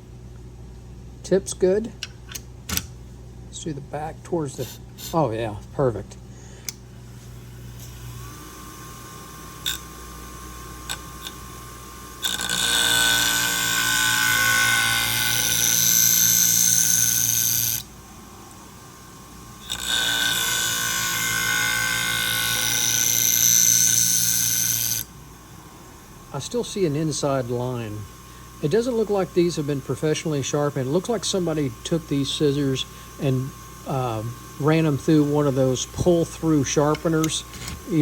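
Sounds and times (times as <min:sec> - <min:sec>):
motor humming: 0:06.4 - 0:38.0
scissor blade grinding: 0:12.2 - 0:17.9, 0:19.6 - 0:25.1, 0:34.8 - 0:38.0.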